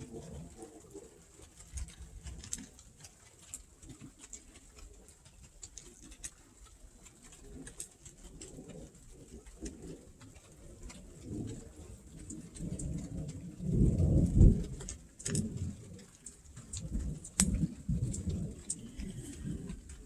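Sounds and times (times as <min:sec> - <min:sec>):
light irregular clicks: 0:00.0 - 0:20.0
bird cooing: 0:14.6 - 0:20.0.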